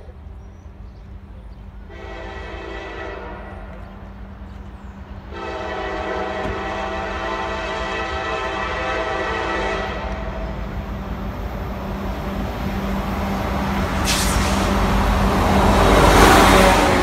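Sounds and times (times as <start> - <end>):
diesel locomotive engines rumbling: 0.0 - 17.0
train horn: 1.9 - 3.9, 5.3 - 10.6, 15.8 - 17.0
brief hiss: 13.9 - 15.1.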